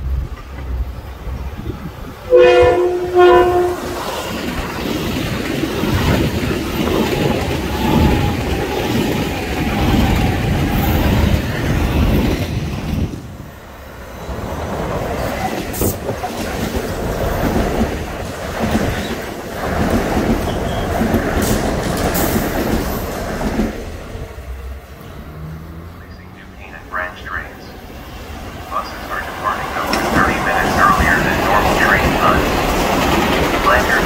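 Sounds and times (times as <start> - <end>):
train rumbling past: 0.0 - 34.0
train wheels clacking over track: 2.4 - 13.3, 14.3 - 24.5, 28.4 - 34.0.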